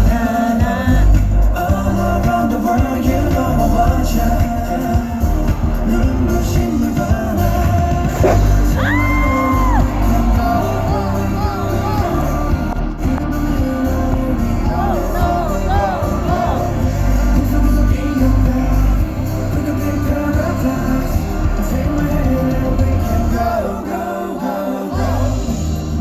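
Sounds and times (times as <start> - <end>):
live pop music with heavy bass: 0.0 - 26.0
crowd whooping and shouting: 7.6 - 26.0.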